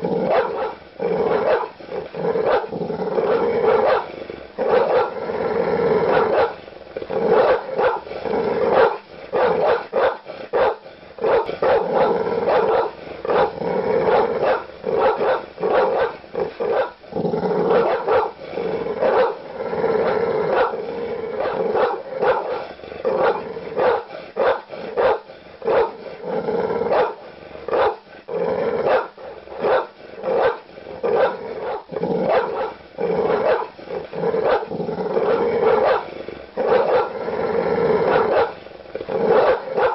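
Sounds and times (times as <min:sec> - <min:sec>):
large dog barking aggressively: 0:00.0 - 0:39.9.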